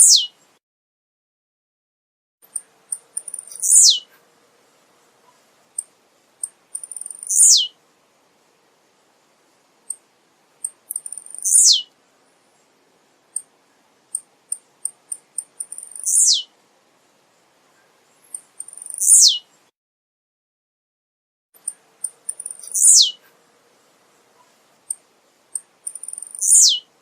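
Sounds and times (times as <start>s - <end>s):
bird singing ticks and downslurred note: 2.5s - 4.0s, 5.7s - 7.7s, 9.8s - 11.8s, 13.3s - 16.5s, 17.8s - 19.4s, 21.6s - 23.2s, 24.4s - 26.8s.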